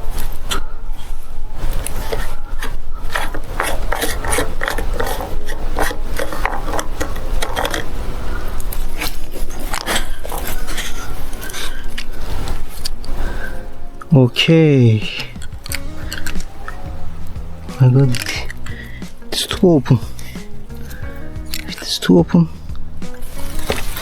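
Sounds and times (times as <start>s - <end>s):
plastic pipe fittings scraping and clicking: 1.7s - 13.2s, 15.0s - 24.0s
steady low rumble: 7.9s - 24.0s.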